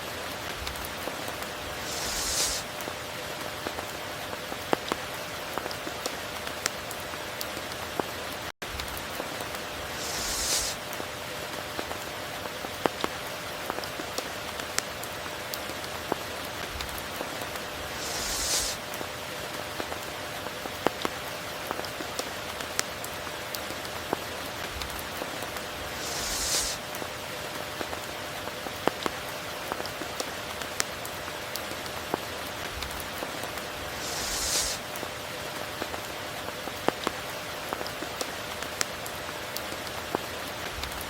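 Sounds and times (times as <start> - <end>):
steady rain falling: 0.0 - 41.0
high hissing swell: 1.6 - 2.7, 9.8 - 10.9, 17.8 - 18.8, 25.8 - 26.8, 33.9 - 34.8.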